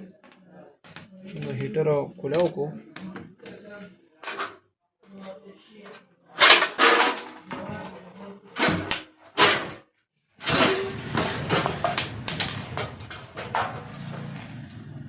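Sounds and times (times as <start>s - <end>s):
plastic rattling and scraping: 6.4s - 9.8s, 10.4s - 14.3s.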